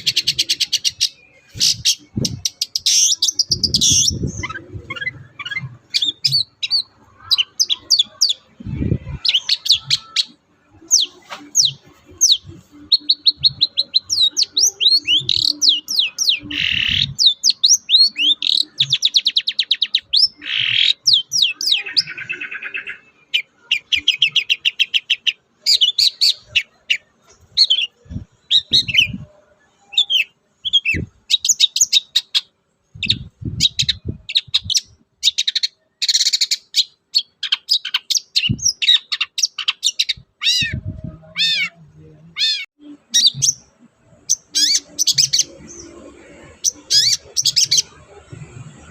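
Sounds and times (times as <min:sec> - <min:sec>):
bird singing chattering song: 0:00.0 - 0:48.9
harsh raspy bird calls: 0:09.1 - 0:29.1, 0:33.7 - 0:48.0.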